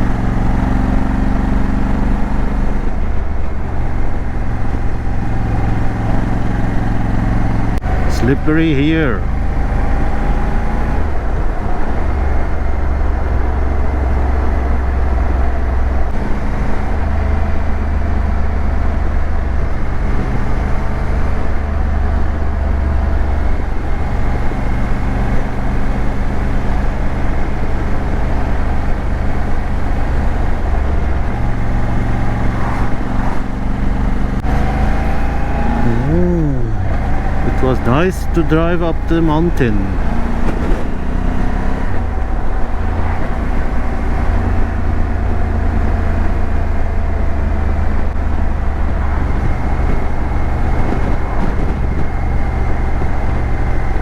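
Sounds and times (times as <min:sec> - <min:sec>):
road noise: 0:25.5 - 0:50.7.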